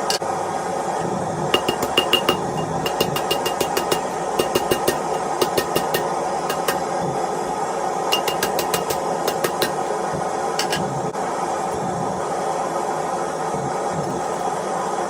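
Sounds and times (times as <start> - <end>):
hammer striking anvil: 1.6 - 6.9, 8.1 - 9.9, 10.6 - 10.9.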